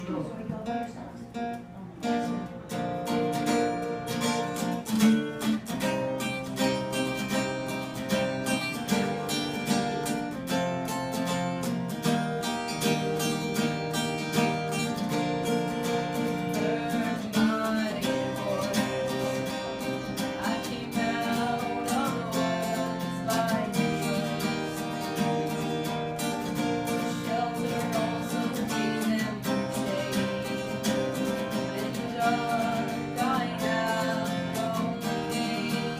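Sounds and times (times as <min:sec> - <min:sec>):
acoustic guitar strumming: 0:00.0 - 0:35.9
person singing: 0:12.9 - 0:35.9.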